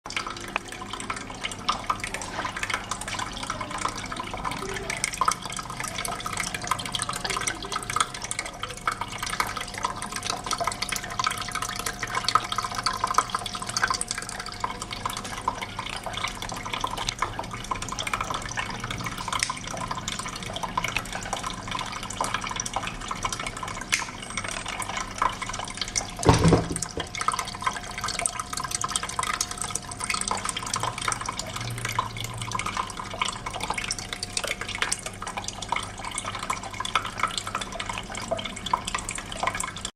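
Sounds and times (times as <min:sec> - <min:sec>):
fountain water trickling: 0:00.1 - 0:39.9
dull thump: 0:26.3 - 0:26.9.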